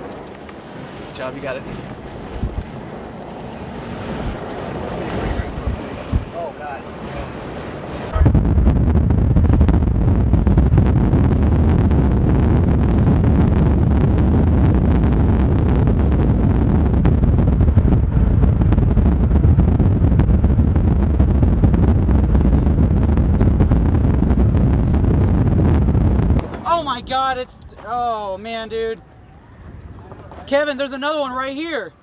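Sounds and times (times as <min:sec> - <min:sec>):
storm wind buffeting microphone: 0:00.0 - 0:30.6.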